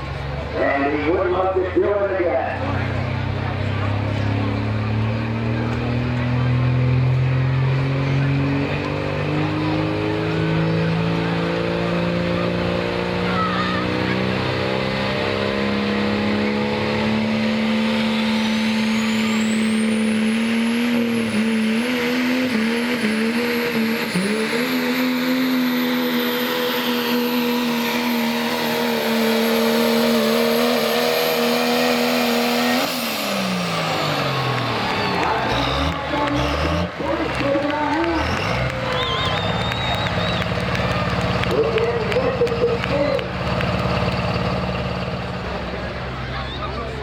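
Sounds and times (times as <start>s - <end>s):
diesel truck engine full throttle: 0.0s - 47.0s
turbo whistle: 38.3s - 40.6s.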